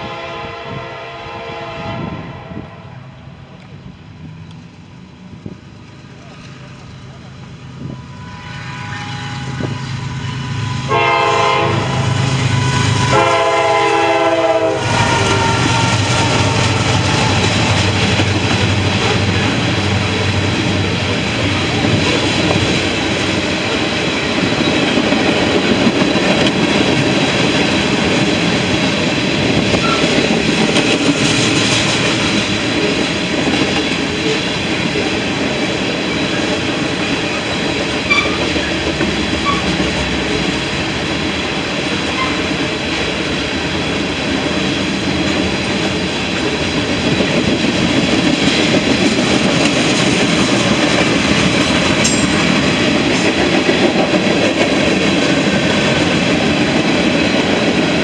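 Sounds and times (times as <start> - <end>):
train horn blasts: 0.0 - 3.2, 7.8 - 17.0, 38.1 - 38.5, 42.1 - 42.6
locomotive rumble: 0.0 - 58.0.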